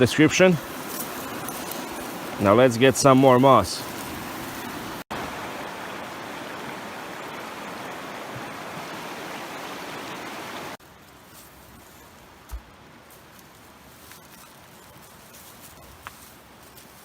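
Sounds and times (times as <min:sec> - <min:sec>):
creek water rushing: 0:00.0 - 0:11.5.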